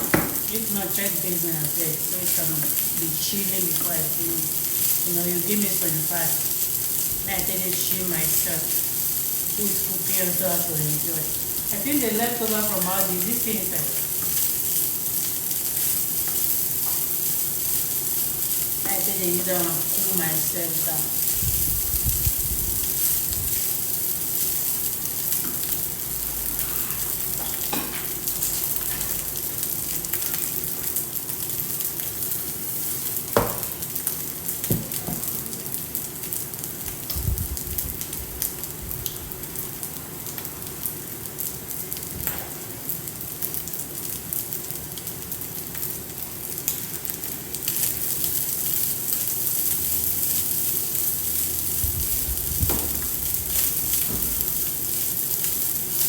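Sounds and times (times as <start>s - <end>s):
rice sizzling in a pan: 0.0s - 56.0s.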